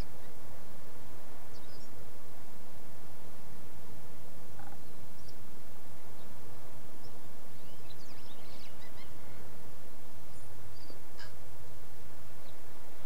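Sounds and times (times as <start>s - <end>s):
birds chirping: 1.4s - 2.0s, 4.5s - 13.0s.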